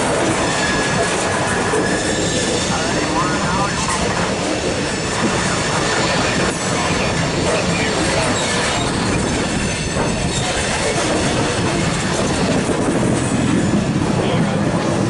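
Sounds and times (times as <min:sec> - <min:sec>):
train rumbling past: 0:00.0 - 0:15.0
high wheel squeal: 0:01.7 - 0:02.9, 0:07.6 - 0:10.7.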